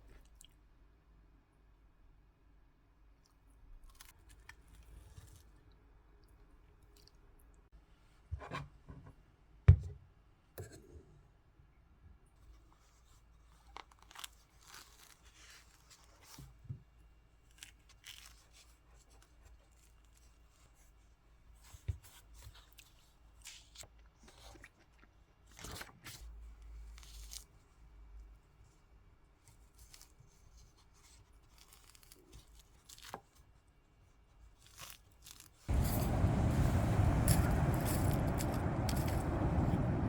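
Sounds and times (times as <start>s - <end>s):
rustling and tearing: 13.5s - 16.6s, 17.4s - 20.9s, 26.8s - 27.8s, 29.5s - 33.6s, 34.4s - 36.0s.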